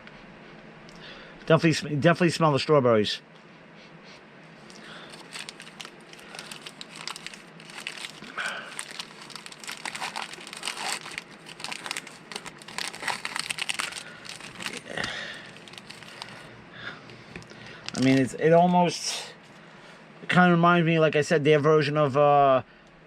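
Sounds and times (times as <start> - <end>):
plastic wrapper crinkling: 4.7 - 16.5, 17.4 - 18.7.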